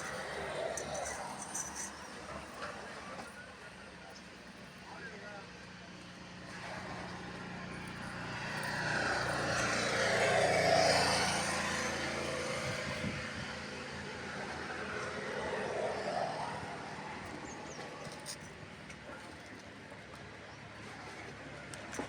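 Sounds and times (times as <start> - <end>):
motor vehicle passing: 0.0 - 3.2, 6.4 - 18.5.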